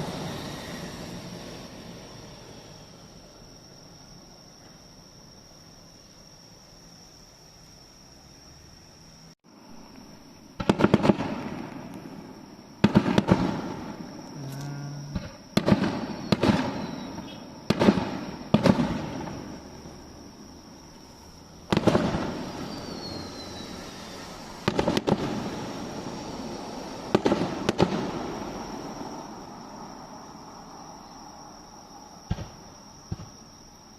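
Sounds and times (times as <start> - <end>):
fireworks bursting with echo: 0.0 - 3.1, 10.5 - 20.5, 21.6 - 29.9, 32.3 - 33.4
insect trill: 0.0 - 33.9.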